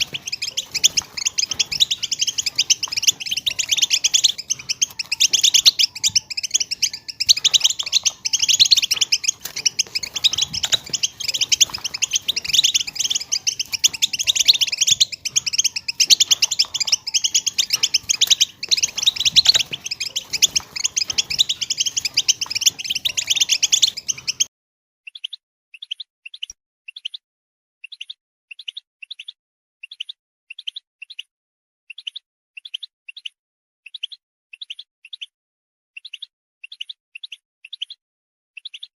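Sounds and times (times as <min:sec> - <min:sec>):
goldfinch chirps: 0:00.0 - 0:24.5, 0:25.1 - 0:27.2, 0:27.8 - 0:31.3, 0:31.9 - 0:35.3, 0:36.0 - 0:38.0, 0:38.6 - 0:38.9
goldfinches twittering: 0:00.0 - 0:24.5.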